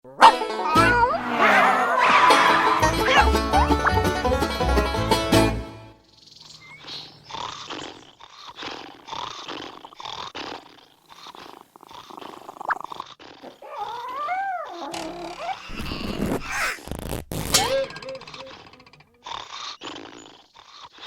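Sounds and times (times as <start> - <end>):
cartoon animal cry: 0.2 - 3.6.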